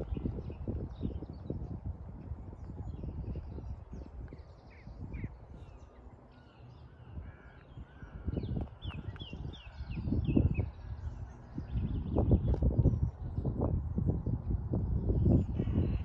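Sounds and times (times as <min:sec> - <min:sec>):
low rumbling on microphone: 0:00.0 - 0:16.0
birds calling: 0:03.0 - 0:13.4.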